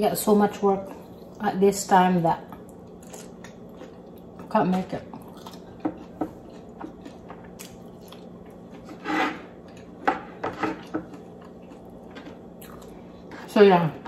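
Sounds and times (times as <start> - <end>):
faint steady hum: 0.0 - 14.0
chewing and wet mouth sounds: 2.4 - 10.0, 10.8 - 13.6.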